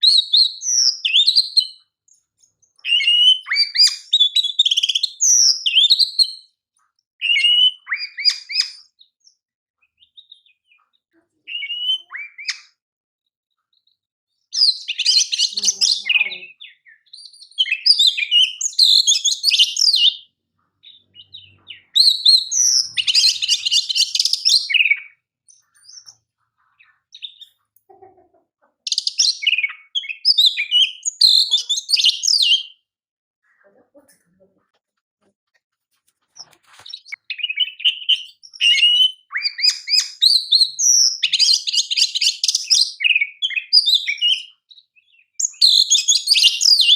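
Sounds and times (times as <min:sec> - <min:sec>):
bird singing whistles and trills: 0:00.0 - 0:06.5, 0:07.2 - 0:10.8, 0:11.5 - 0:12.8, 0:14.5 - 0:26.2, 0:28.9 - 0:32.8, 0:36.4 - 0:46.9.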